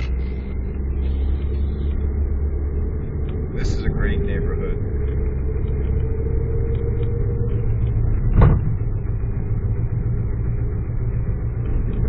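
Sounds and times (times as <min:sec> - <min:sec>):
car engine rumble and road noise: 0:00.0 - 0:12.0
short thump: 0:08.3 - 0:08.8.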